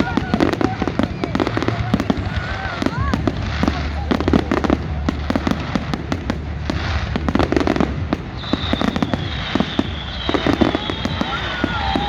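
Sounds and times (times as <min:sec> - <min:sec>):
fireworks cracking and popping: 0:00.0 - 0:12.0
high falling firework whistle: 0:07.2 - 0:12.0.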